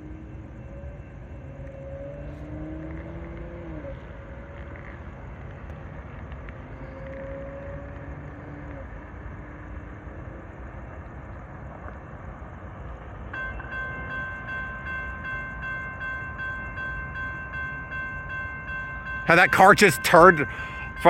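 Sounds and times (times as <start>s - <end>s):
crossing warning bells ringing: 0.0s - 3.2s, 13.3s - 21.0s.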